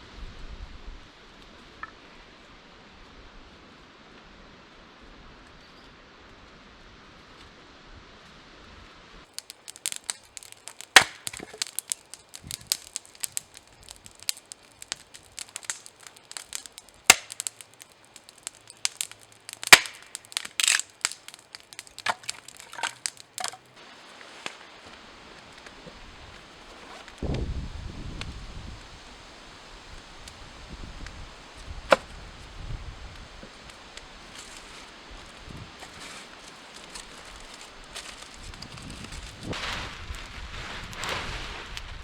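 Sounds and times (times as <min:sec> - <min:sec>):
dry wood snapping and cracking: 0:09.3 - 0:27.4, 0:29.8 - 0:40.2.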